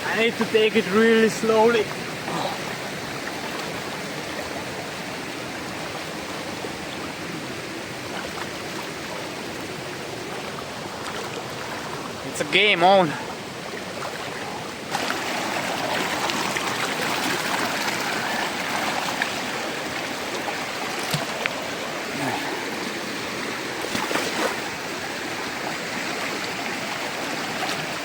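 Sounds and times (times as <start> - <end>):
river rushing over stones: 0.0 - 28.0.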